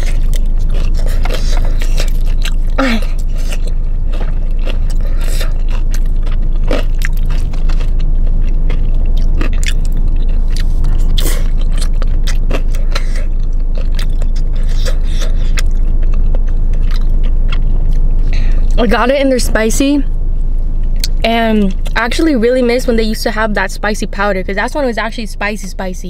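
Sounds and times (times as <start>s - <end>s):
chewing crispy fried chicken: 0.0s - 18.1s
steady low hum: 0.0s - 26.0s.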